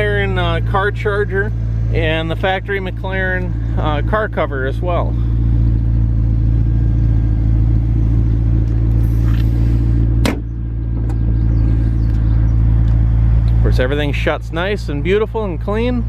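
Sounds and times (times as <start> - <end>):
car engine idling: 0.0 - 16.0
car hood slamming shut: 10.2 - 11.2.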